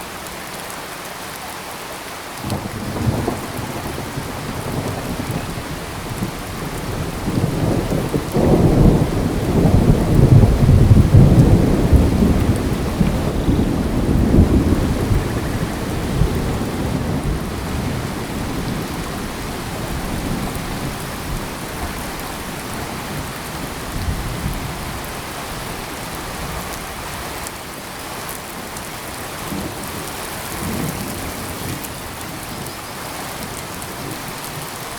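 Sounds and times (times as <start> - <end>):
steady rain hiss: 0.0 - 34.9
thunder rumbling: 2.5 - 26.6.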